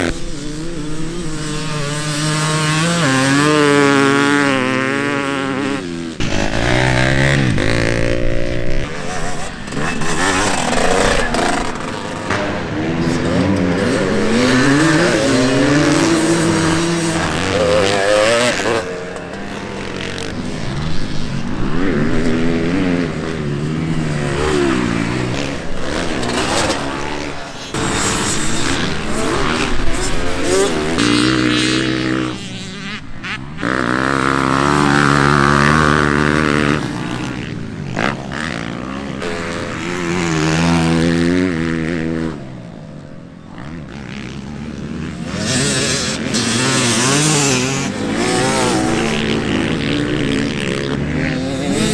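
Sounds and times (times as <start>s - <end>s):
dirt bike engines revving: 0.0s - 51.9s.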